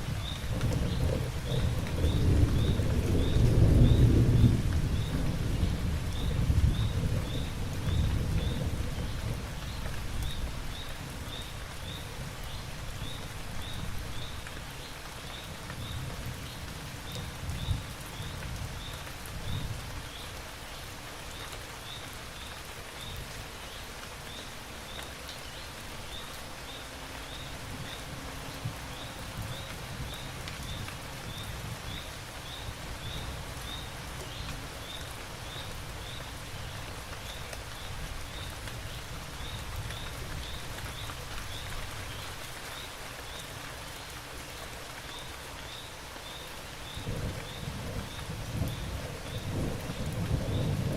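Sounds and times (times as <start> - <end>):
distant thunder rumble: 0.0 - 11.2, 46.8 - 50.9
steady rain falling: 0.0 - 50.9.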